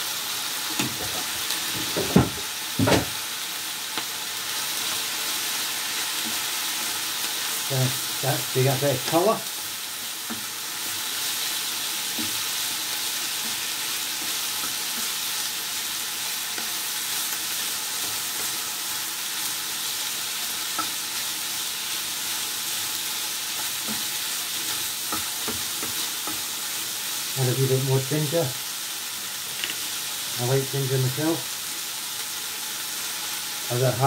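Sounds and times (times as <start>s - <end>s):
food sizzling in a frying pan: 0.0s - 34.0s.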